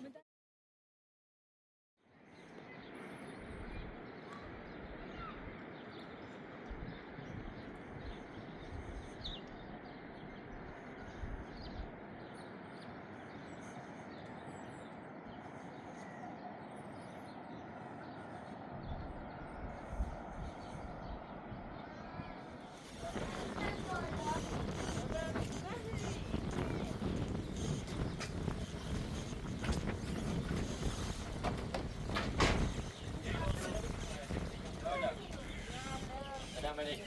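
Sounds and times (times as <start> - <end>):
steady rushing noise: 17.8 - 37.0.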